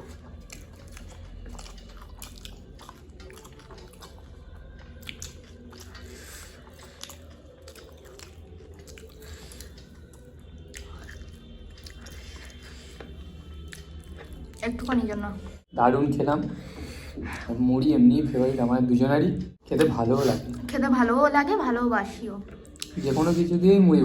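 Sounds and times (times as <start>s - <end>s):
people chewing and crunching: 0.0s - 15.7s, 19.6s - 20.8s, 22.4s - 24.0s.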